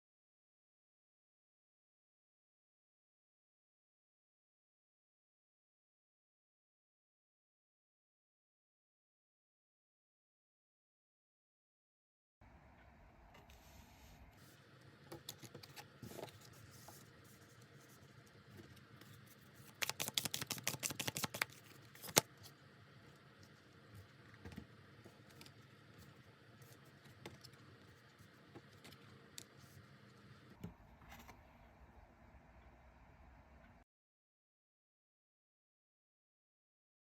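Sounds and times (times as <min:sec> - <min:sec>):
cards being shuffled: 0:18.6 - 0:22.5.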